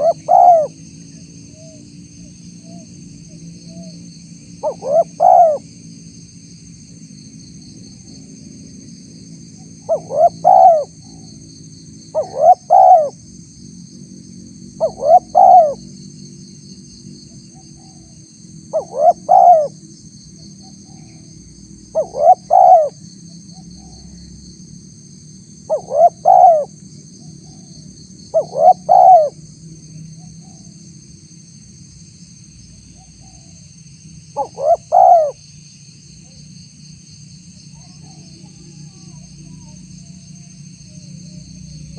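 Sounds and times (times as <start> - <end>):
dove cooing: 0.0 - 0.8, 4.6 - 5.6, 9.8 - 11.2, 12.1 - 13.2, 14.8 - 15.8, 18.7 - 19.8, 21.9 - 23.0, 25.7 - 26.7, 28.3 - 29.4, 34.4 - 35.4.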